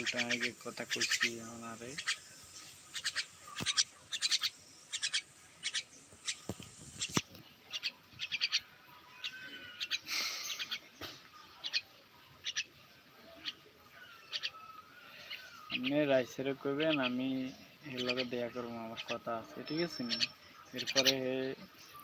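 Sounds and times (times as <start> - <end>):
bird chirps and clicks: 0.0 - 8.7, 19.0 - 21.2.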